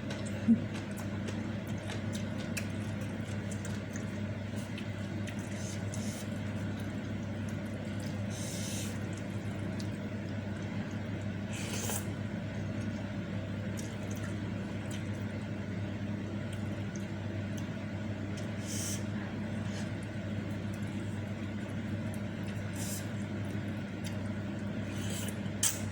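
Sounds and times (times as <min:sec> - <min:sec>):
person chewing: 0:00.0 - 0:15.3
slurping noodles: 0:11.5 - 0:12.1.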